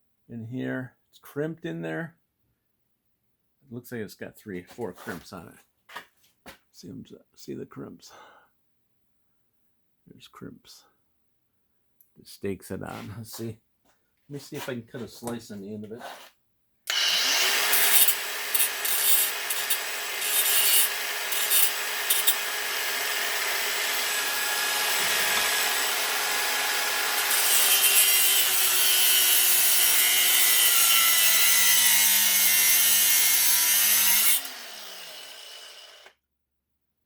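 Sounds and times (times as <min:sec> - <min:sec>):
rotary cutting tool cutting metal: 0:16.9 - 0:36.1
tool winding down whine: 0:16.9 - 0:36.1.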